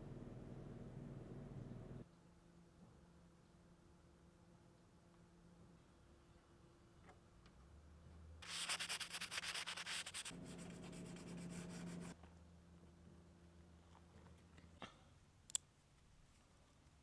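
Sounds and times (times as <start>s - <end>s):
hand sanding strokes: 8.4s - 12.2s.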